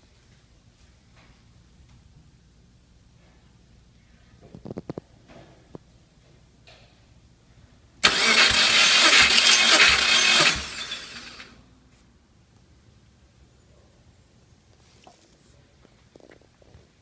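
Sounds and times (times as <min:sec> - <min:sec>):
engine starter cranking: 0:08.0 - 0:11.5.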